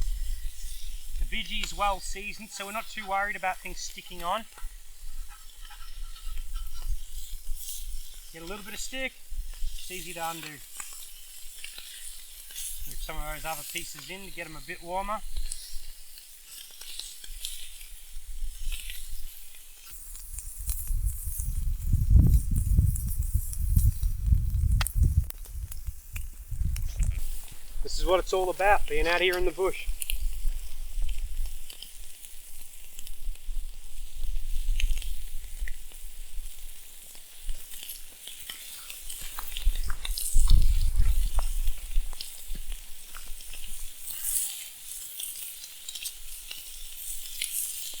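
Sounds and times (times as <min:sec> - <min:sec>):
meat sizzling on a hot plate: 0:00.0 - 0:48.0
small pops and crackles: 0:00.0 - 0:48.0
wind rumble on microphone: 0:20.3 - 0:27.9, 0:39.4 - 0:42.8.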